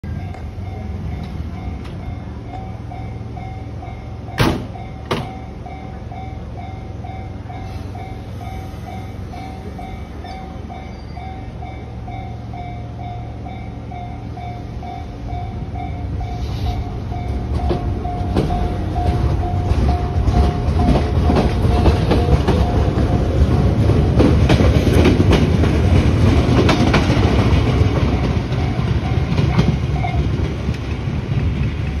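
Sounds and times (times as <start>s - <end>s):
train wheels clattering over joints: 17.2s - 31.8s
level-crossing bell ringing: 28.0s - 30.3s.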